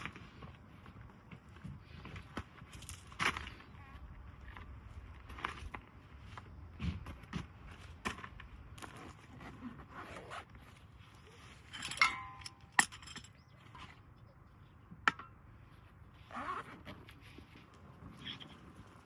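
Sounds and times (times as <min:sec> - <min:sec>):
ringing clink: 0:11.7 - 0:13.4.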